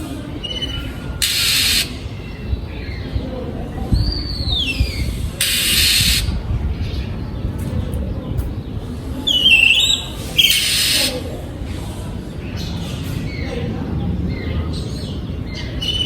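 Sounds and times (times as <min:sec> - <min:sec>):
bursts of hiss-like noise: 0:01.2 - 0:02.0
bird whistling song: 0:09.3 - 0:11.1, 0:15.6 - 0:16.0.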